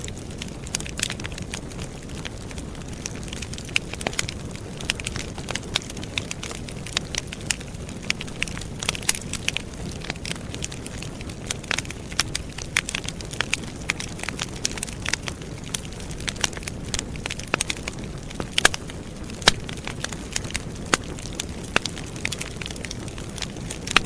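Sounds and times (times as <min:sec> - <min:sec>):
campfire logs crackling: 0:00.0 - 0:24.0.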